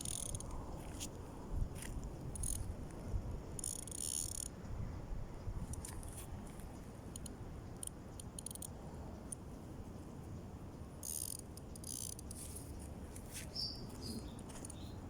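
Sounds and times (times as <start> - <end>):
cricket chirp: 0.0 - 2.9, 3.5 - 4.8, 5.4 - 15.0
wind buffeting microphone: 0.0 - 3.7.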